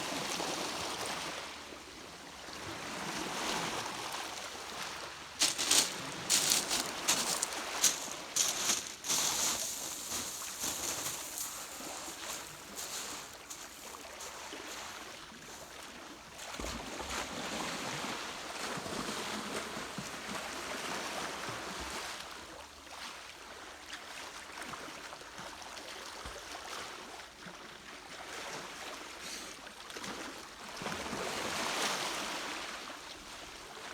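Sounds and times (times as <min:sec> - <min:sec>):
wind: 0:00.0 - 0:33.9
sea waves washing on shore: 0:04.8 - 0:15.1.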